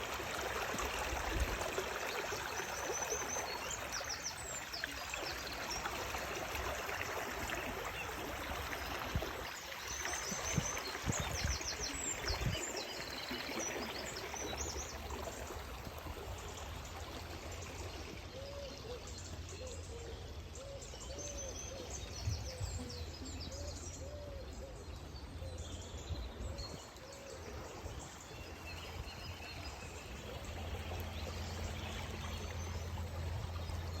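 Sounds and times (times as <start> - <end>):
river water flowing: 0.0 - 22.1, 22.8 - 34.0.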